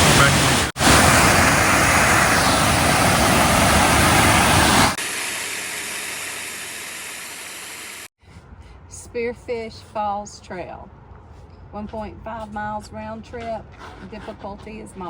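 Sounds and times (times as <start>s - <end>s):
waterfall roaring: 0.0s - 8.0s
quieter rush of falling water: 0.0s - 8.1s.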